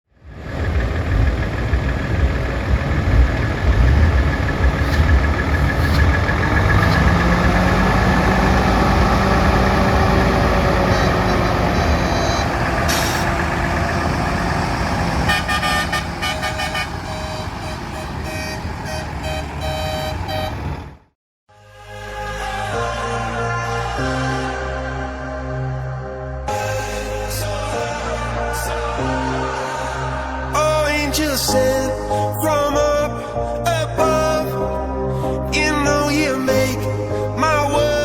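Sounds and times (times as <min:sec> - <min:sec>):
truck diesel engine rumbling: 0:00.2 - 0:21.2
rapid pulsing horn: 0:15.2 - 0:19.4.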